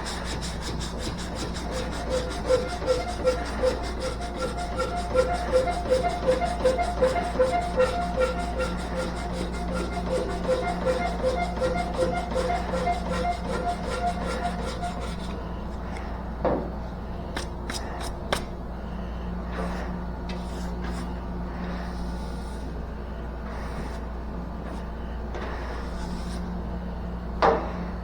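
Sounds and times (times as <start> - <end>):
hand sanding car body panel: 0.0 - 15.4
steady low hum: 0.0 - 28.0.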